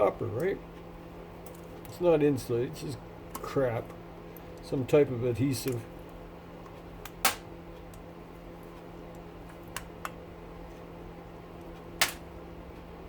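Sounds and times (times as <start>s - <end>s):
steady low hum: 0.0s - 13.0s
clips snapping off a motor rotor: 12.0s - 12.2s.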